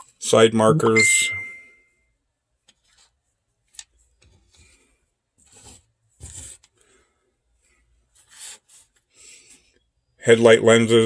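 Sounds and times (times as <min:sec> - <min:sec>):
rubbing and scraping of model parts: 0:02.6 - 0:06.9, 0:07.5 - 0:09.8.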